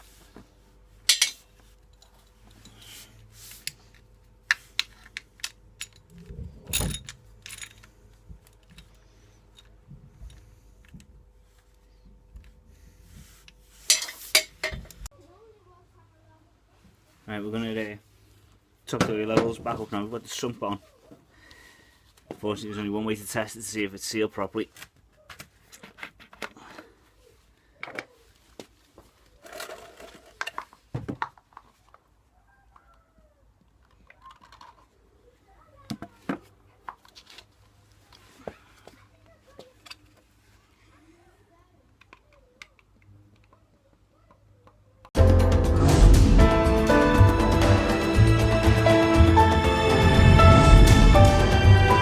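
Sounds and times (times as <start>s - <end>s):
metal tools clinking: 1.1s - 2.9s, 6.7s - 8.0s
loud scrape and thump: 49.6s - 52.0s.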